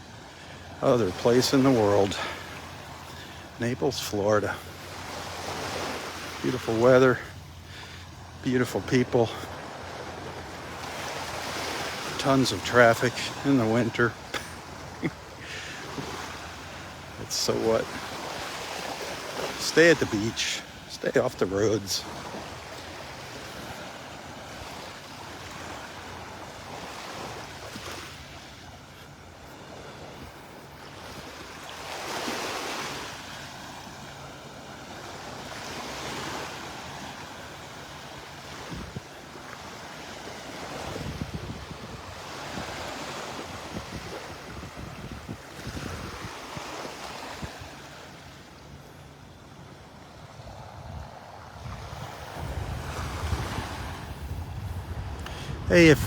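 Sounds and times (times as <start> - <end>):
surf washing onto beach: 0.0 - 56.0
wind buffeting microphone: 40.8 - 42.8, 43.5 - 46.3, 50.6 - 56.0.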